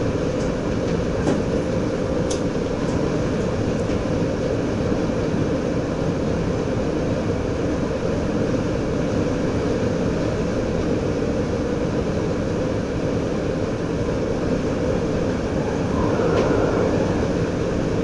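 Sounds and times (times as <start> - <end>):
diesel train drone: 0.0 - 18.0
wheels on rails: 14.8 - 18.0.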